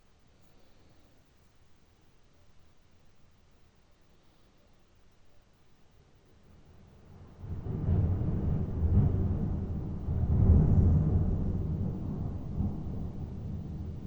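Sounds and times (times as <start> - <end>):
rolling thunder: 6.7 - 14.0.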